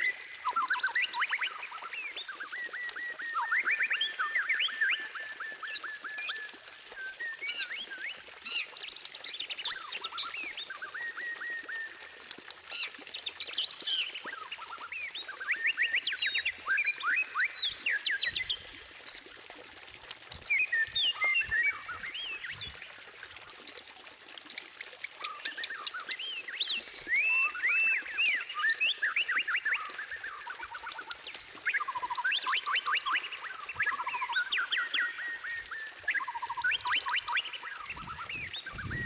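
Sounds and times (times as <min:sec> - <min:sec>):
bird singing whistled phrases: 0:00.0 - 0:08.8, 0:09.7 - 0:12.2, 0:13.9 - 0:18.7, 0:20.4 - 0:22.7, 0:25.2 - 0:39.0.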